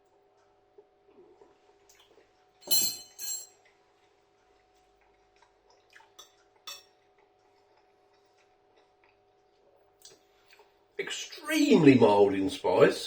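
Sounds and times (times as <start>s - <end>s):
spoon clinking in plastic tray: 2.6s - 3.5s.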